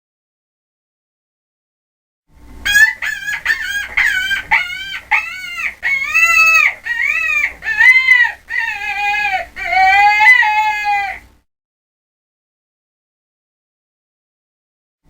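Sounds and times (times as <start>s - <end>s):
farm animal calling: 2.7s - 11.3s.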